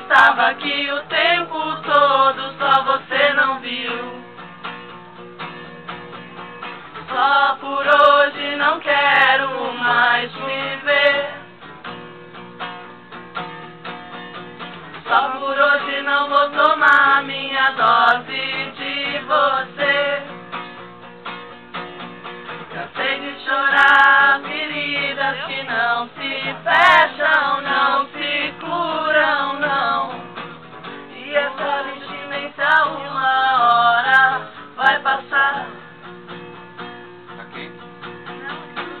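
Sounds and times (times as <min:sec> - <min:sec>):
people singing along: 0:00.0 - 0:04.2, 0:07.0 - 0:11.5, 0:15.0 - 0:20.4, 0:22.7 - 0:30.3, 0:31.1 - 0:35.8
acoustic guitar strumming: 0:00.0 - 0:39.0.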